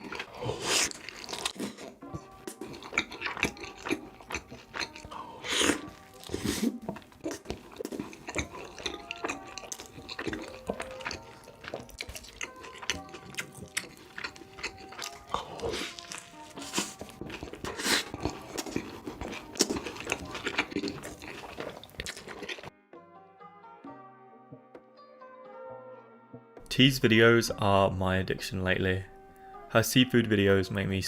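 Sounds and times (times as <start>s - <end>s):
crunchy bites and chewing: 0.0s - 22.7s
background music: 0.0s - 31.0s.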